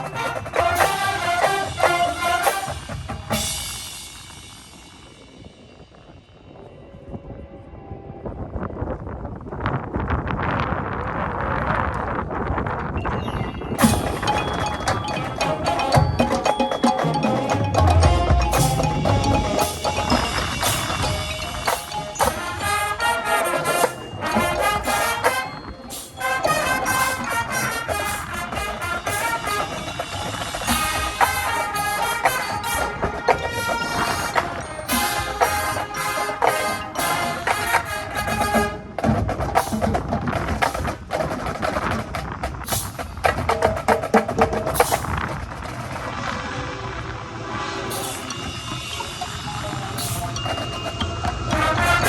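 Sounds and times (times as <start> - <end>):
marching band playing: 0.0 - 5.2, 13.8 - 46.2, 47.4 - 52.0
wind buffeting microphone: 4.0 - 16.3, 38.0 - 52.0
held notes: 13.2 - 39.8
rapid percussion clicks: 13.8 - 46.2.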